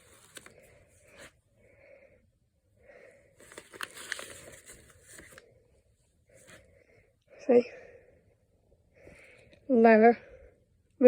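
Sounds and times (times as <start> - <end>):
paper and envelope crackling: 0.0 - 1.3, 3.4 - 5.5
faint breathing: 0.0 - 10.8.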